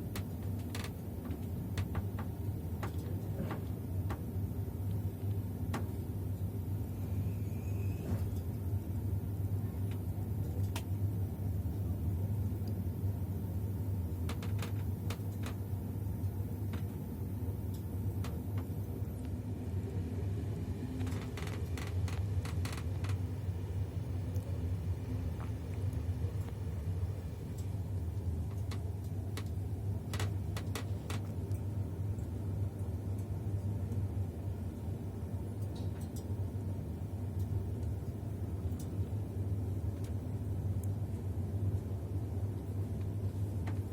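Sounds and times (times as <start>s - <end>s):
train carriage rumbling on rails: 0.0s - 17.4s, 19.7s - 23.6s, 28.5s - 31.3s
sharp clicks and rattles: 14.2s - 15.6s, 21.0s - 23.3s.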